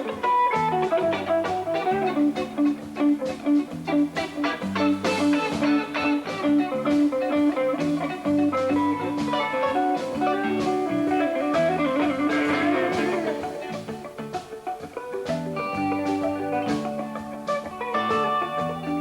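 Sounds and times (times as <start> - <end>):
electric guitar picking: 0.0 - 19.0
rock band playing: 0.0 - 19.0.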